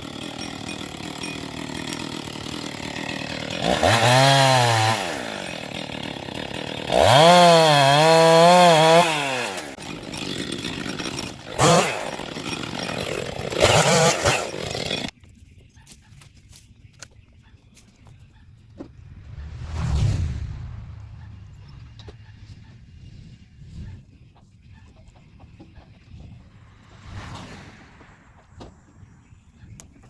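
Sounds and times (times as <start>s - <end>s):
chainsaw revving: 0.0s - 15.1s.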